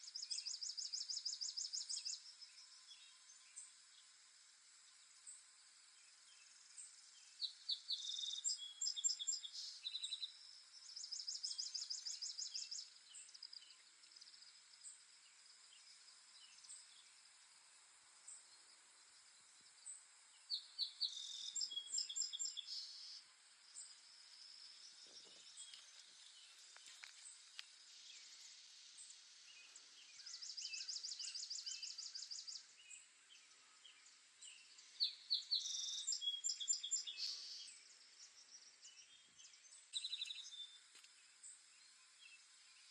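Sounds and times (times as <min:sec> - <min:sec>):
faint steady hiss: 0:00.0 - 0:42.9
songbirds trilling: 0:20.4 - 0:42.9.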